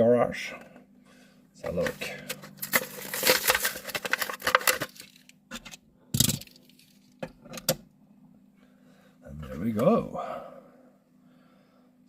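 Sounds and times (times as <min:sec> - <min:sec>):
plastic packaging crackling: 0:02.3 - 0:05.3.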